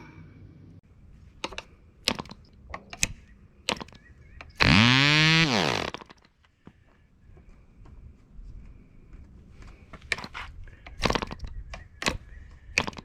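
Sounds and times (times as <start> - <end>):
sharp clicks: 1.4 - 6.3
model airplane engine firing: 4.6 - 6.2.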